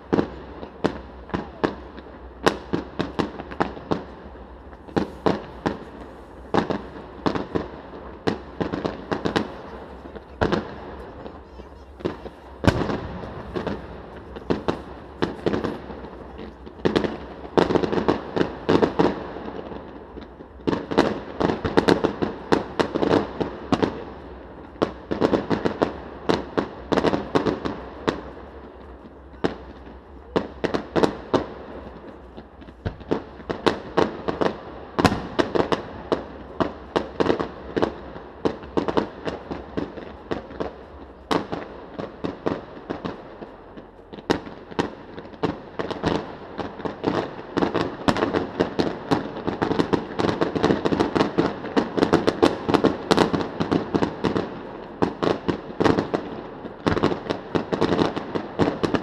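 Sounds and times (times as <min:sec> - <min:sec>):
fireworks bangs and crackles: 0:00.0 - 0:59.0
continuous rumble: 0:00.3 - 0:18.7.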